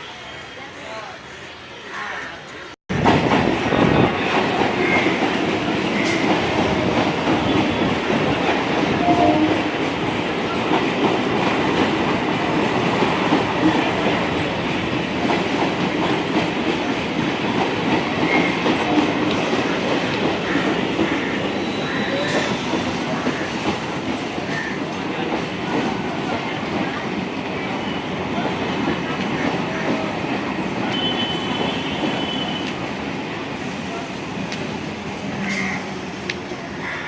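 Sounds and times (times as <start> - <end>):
train wheels clattering on rails: 2.9 - 36.8.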